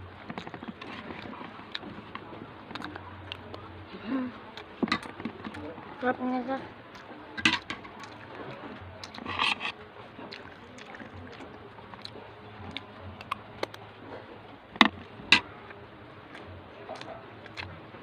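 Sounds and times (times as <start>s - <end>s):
chewing: 0.0s - 6.2s, 6.9s - 18.0s
faint steady hum: 0.0s - 18.0s
cutlery clinking on a plate: 7.4s - 8.0s.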